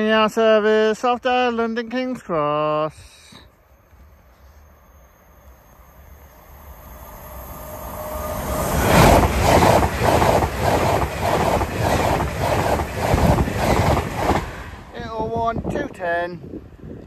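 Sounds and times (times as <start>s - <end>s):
train passing at speed: 3.9s - 16.9s.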